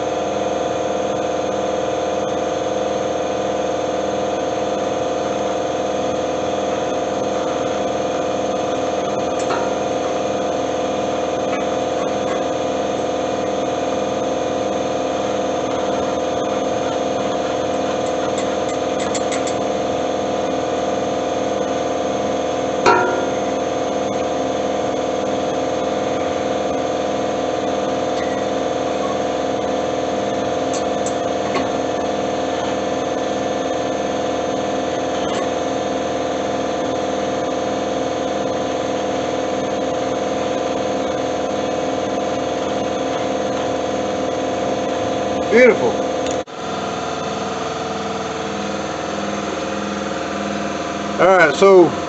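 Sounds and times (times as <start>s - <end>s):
steady machine hum: 0.0s - 52.0s
ringing metal clank: 9.4s - 10.3s, 22.8s - 23.7s.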